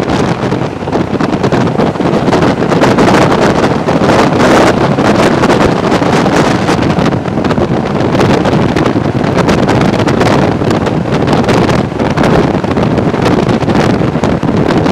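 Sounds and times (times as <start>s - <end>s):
train wheels rumbling on rails: 0.0s - 14.9s
wind rushing over microphone: 0.0s - 14.9s.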